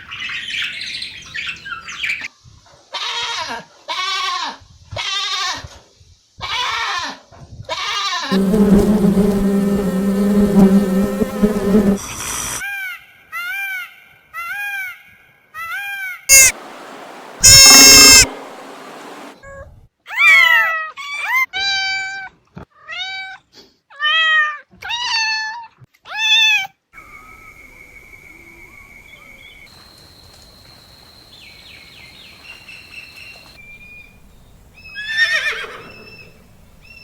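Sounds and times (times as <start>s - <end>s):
cat meowing: 16.3s - 16.5s, 17.4s - 18.3s
thin high tones: 16.3s - 16.6s, 17.4s - 19.2s.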